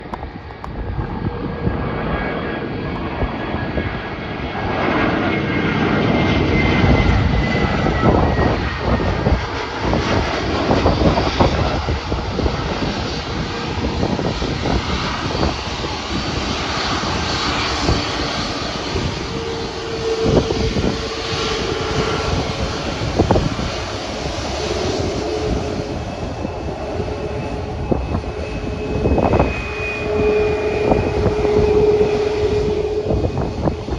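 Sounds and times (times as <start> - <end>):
jet engine rush: 0.0 - 33.9.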